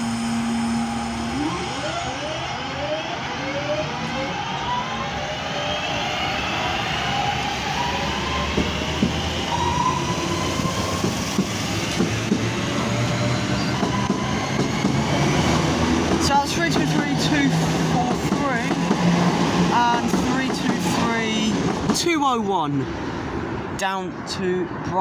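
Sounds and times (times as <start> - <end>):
traction motor whine: 0.0 - 19.8
train rumble: 0.0 - 23.8.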